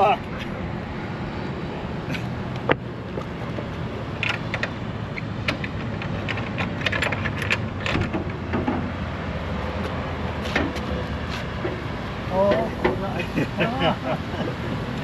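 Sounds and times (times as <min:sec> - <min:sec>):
low vehicle hum: 0:00.0 - 0:15.0
knocks and clatters in trailer: 0:05.4 - 0:09.0.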